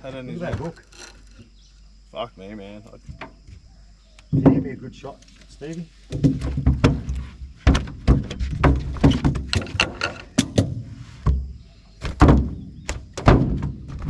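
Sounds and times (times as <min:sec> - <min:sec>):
knocks and thuds against a boat: 0:00.4 - 0:00.8, 0:04.3 - 0:04.9, 0:06.1 - 0:14.0.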